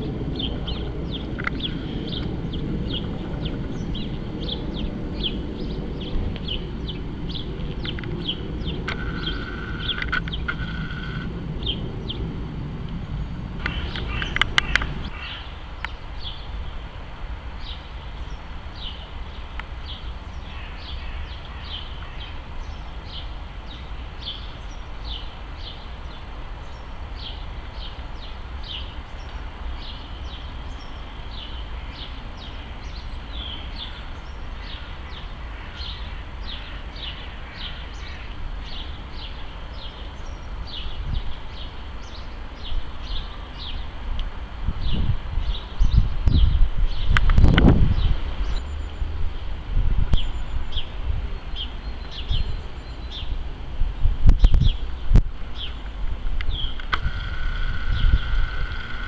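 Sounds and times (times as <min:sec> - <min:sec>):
small bird chirping: 0:00.0 - 0:12.3, 0:13.1 - 0:16.6
low hum: 0:00.0 - 0:16.4, 0:56.7 - 0:59.0
steady low rumble: 0:00.0 - 0:59.0
sharp clicks: 0:08.8 - 0:11.3, 0:13.6 - 0:15.1, 0:56.4 - 0:57.7.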